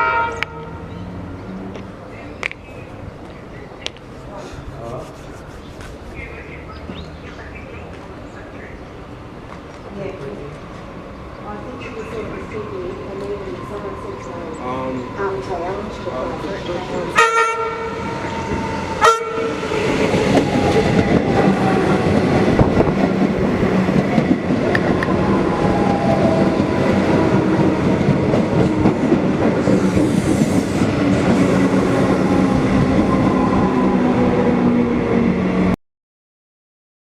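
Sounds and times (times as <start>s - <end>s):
train horn toot: 0.0s - 0.9s, 17.1s - 18.3s, 19.0s - 19.7s
train running through: 0.0s - 35.8s.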